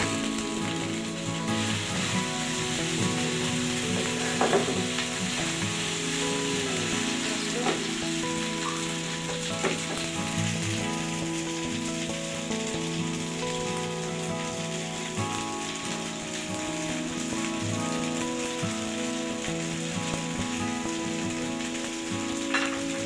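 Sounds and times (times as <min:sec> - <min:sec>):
food sizzling in a pan: 0:00.0 - 0:23.0
utensil knocking against pan: 0:04.3 - 0:05.0.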